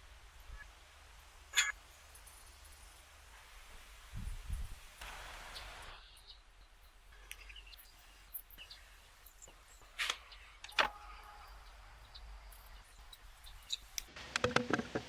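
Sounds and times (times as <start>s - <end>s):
tools clicking and knocking: 13.5s - 15.0s.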